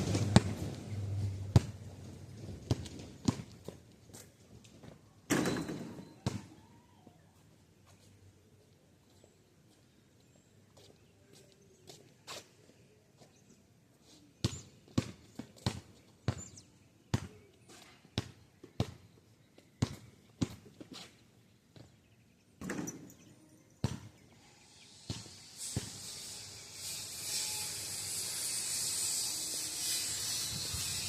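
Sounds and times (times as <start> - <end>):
basketball bouncing on pavement: 0.0 - 3.8, 5.3 - 6.5, 14.4 - 19.1, 19.8 - 21.1, 22.6 - 23.1, 23.8 - 24.2, 25.1 - 26.0.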